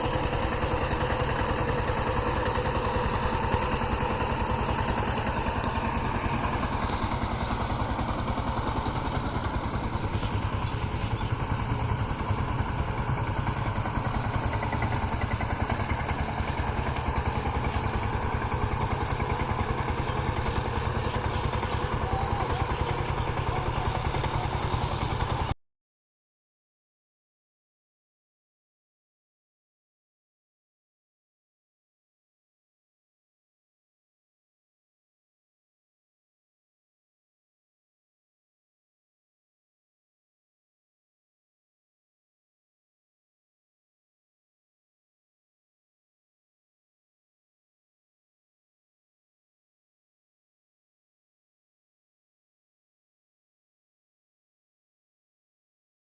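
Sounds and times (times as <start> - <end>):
diesel engine chugging: 0.0 - 25.6.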